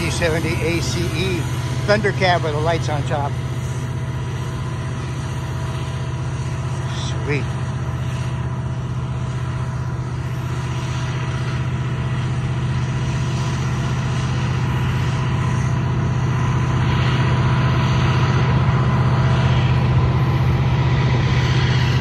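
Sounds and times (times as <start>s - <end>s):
freight cars rumbling on rails: 0.0s - 8.0s
diesel locomotive engine drone: 0.0s - 22.0s.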